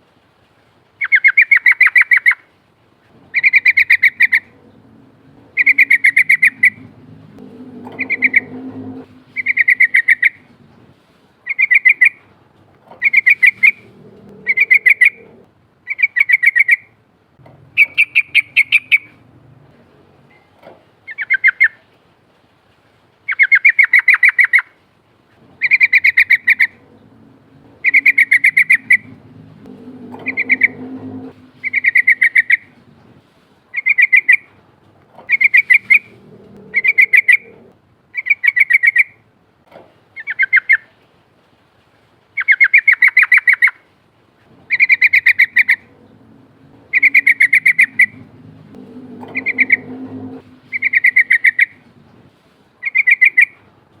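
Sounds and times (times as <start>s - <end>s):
faint low rumble: 2.8s - 21.1s, 25.2s - 39.4s, 44.2s - 54.0s
bird trilled chirping song: 5.5s - 6.9s, 9.4s - 10.4s, 27.8s - 29.3s, 31.6s - 32.7s, 46.8s - 48.4s, 49.0s - 51.8s.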